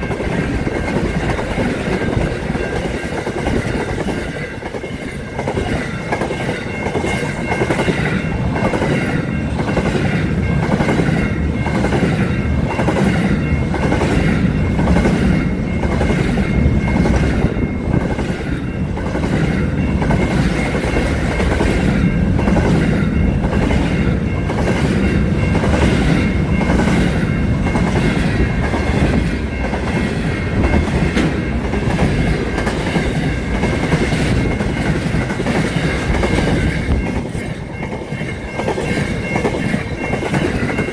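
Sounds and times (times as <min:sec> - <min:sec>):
train rumble: 0:00.0 - 0:40.9
train wheels clickety-clack: 0:00.0 - 0:40.9.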